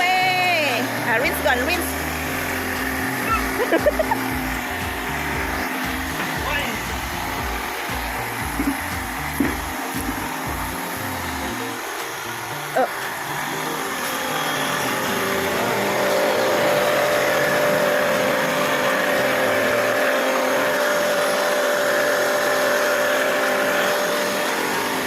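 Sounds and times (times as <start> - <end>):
car wash rushing noise: 0.0 - 25.0
steady whine: 0.0 - 25.0.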